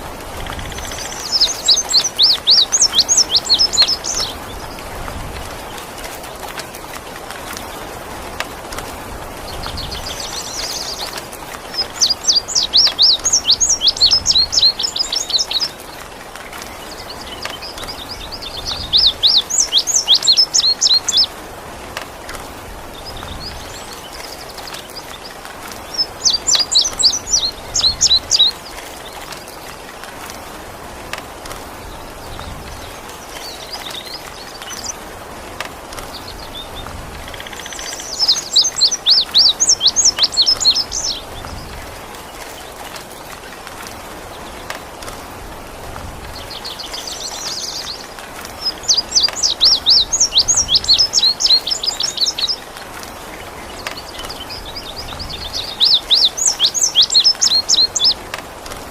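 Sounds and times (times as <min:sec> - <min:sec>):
rain water hiss: 0:00.0 - 0:58.9
bird singing: 0:00.4 - 0:04.9, 0:09.7 - 0:15.8, 0:16.5 - 0:21.3, 0:23.0 - 0:29.4, 0:36.1 - 0:41.8, 0:46.4 - 0:52.7, 0:53.4 - 0:58.2.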